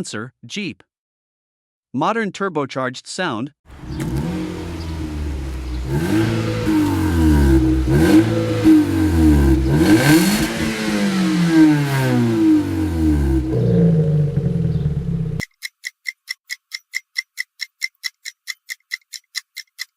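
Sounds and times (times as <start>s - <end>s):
turbocharged car engine revving: 3.7s - 15.4s.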